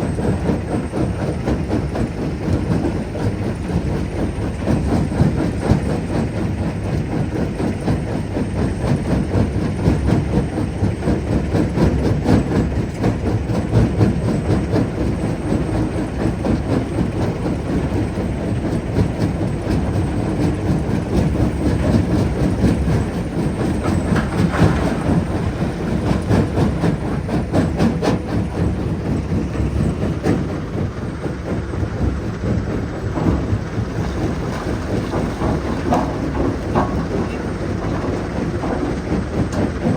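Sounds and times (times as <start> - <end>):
jaw crusher rumbling: 15.8 - 39.9.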